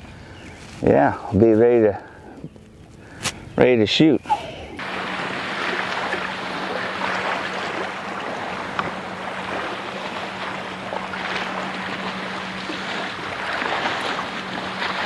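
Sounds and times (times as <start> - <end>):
steady low hum: 0.0 - 15.0
water rushing along kayak hull: 4.8 - 15.0.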